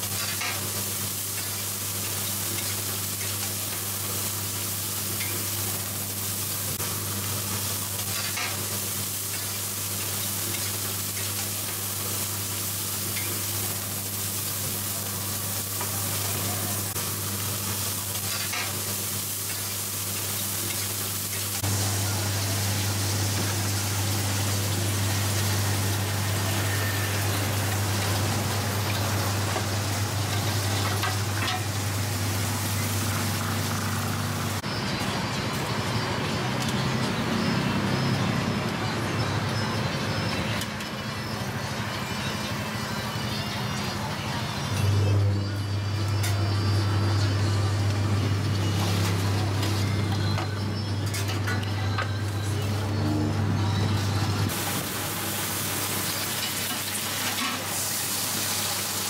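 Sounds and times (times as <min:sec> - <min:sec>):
batter sizzling in oil: 0:00.0 - 0:34.8, 0:54.0 - 0:59.0.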